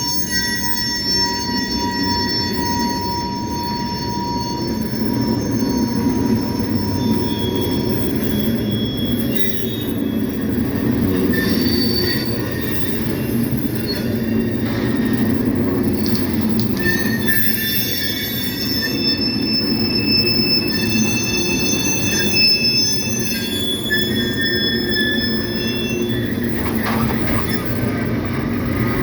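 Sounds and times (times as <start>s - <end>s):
wheels squealing: 16.8s - 29.0s
train cars rumbling past: 26.2s - 29.0s.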